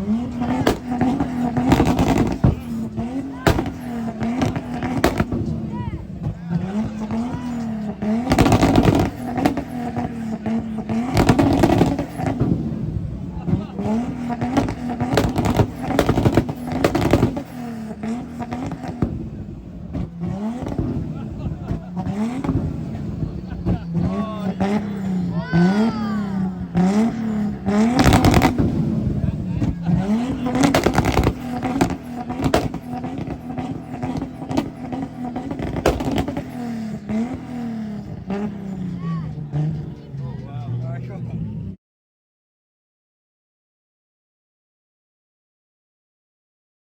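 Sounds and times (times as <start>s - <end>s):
car engine revving: 0.0s - 41.8s
sharp cracks: 3.4s - 5.5s, 8.2s - 9.9s, 14.5s - 17.6s, 27.8s - 28.8s, 30.2s - 37.3s.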